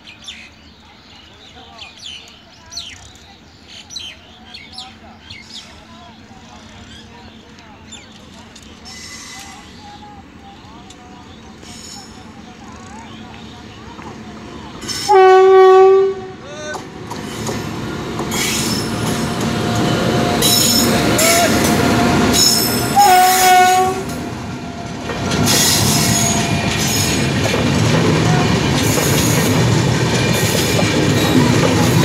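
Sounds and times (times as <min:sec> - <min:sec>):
electric locomotive passing: 0:00.3 - 0:32.0
train horn blast: 0:14.9 - 0:16.4, 0:19.7 - 0:24.2
train wheels clattering on rails: 0:16.7 - 0:32.0.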